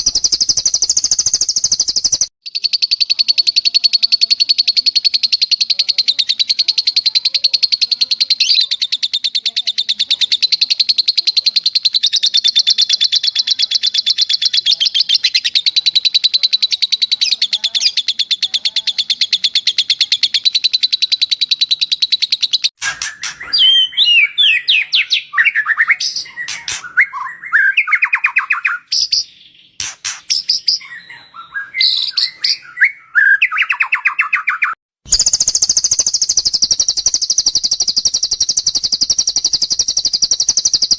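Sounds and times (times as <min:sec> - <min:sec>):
songbird whistled phrases: 0:00.0 - 0:40.9
songbird buzzing trill: 0:35.1 - 0:40.9.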